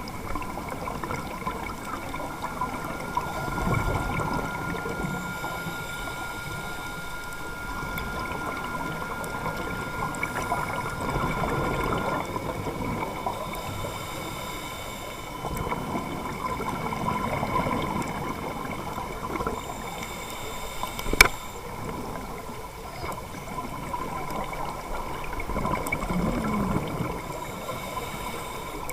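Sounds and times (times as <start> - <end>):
gurgling exhaled bubbles: 0.0 - 13.8, 23.0 - 27.6
faint steady high tones: 0.0 - 28.9.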